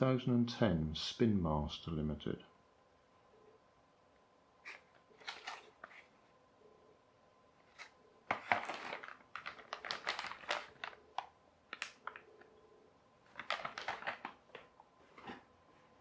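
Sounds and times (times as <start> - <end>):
packaging clicks and crinkles: 4.7 - 5.9, 7.8 - 12.6, 13.3 - 14.7.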